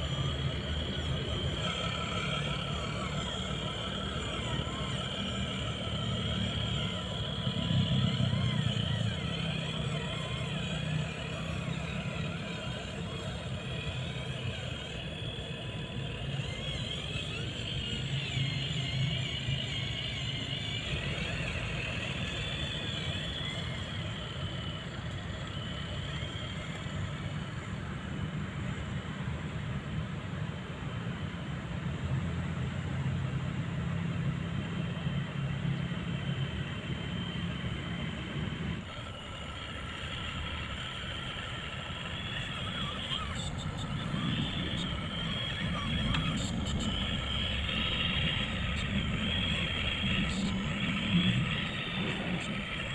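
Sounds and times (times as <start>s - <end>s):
model truck low rumble: 0.0s - 52.9s
wavering high whine: 0.0s - 52.9s.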